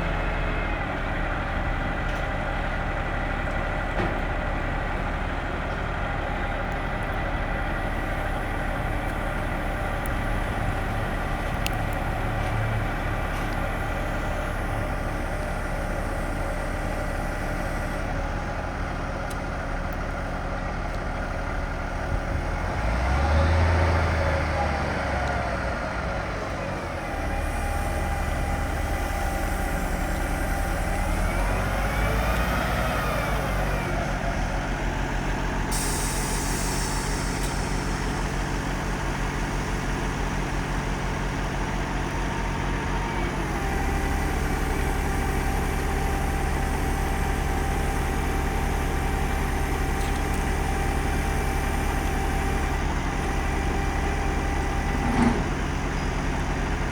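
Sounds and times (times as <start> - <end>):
diesel truck engine idling: 0.0 - 56.9
short hiss: 35.7 - 38.1.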